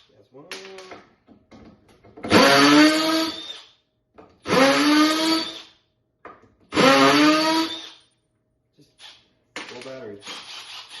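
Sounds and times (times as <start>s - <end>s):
cordless drill motor whirring: 6.8s - 8.0s, 10.3s - 11.0s.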